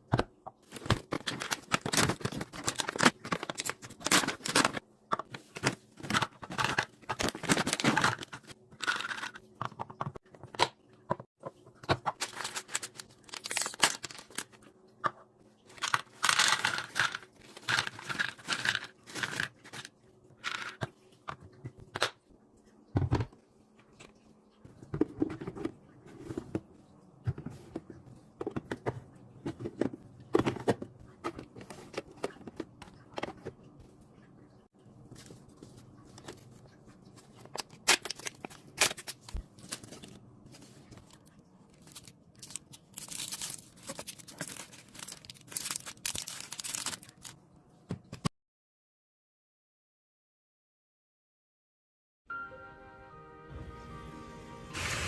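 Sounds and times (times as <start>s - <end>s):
packaging tearing and crinkling: 0.8s - 4.8s, 6.6s - 9.2s, 12.2s - 14.5s, 37.6s - 40.2s, 40.8s - 47.4s.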